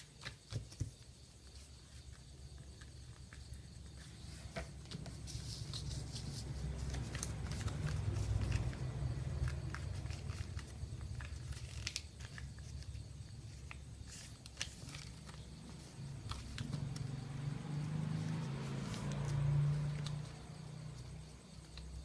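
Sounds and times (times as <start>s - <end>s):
paper crinkling: 2.8s - 17.0s
paper creasing clicks: 6.7s - 12.8s.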